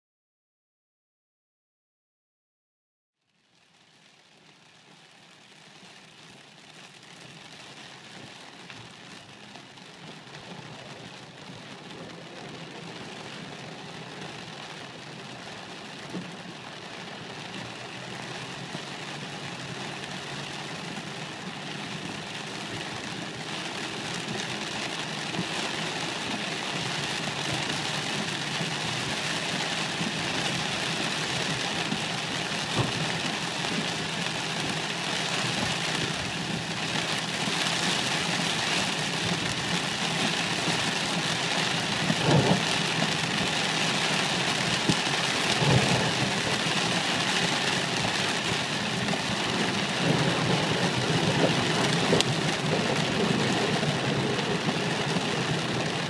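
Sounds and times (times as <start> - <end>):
heavy rain drumming on car roof: 3.5 - 56.0.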